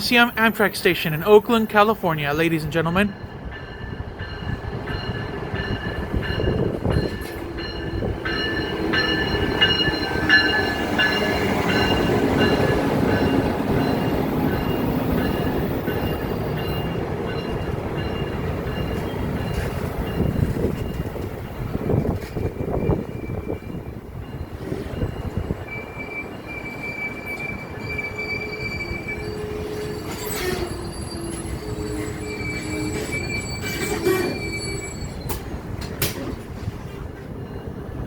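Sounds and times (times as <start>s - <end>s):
train rumbling past: 0.0s - 38.0s
high-pitched brake squealing: 25.7s - 35.4s.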